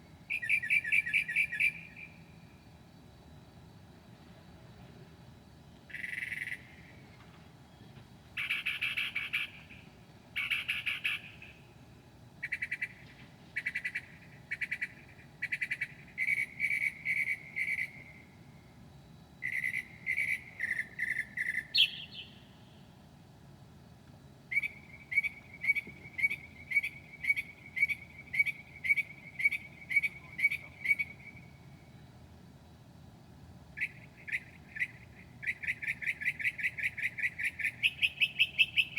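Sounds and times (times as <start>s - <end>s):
mockingbird singing: 8.4s - 11.6s, 19.4s - 22.6s, 24.5s - 31.6s, 33.8s - 38.9s.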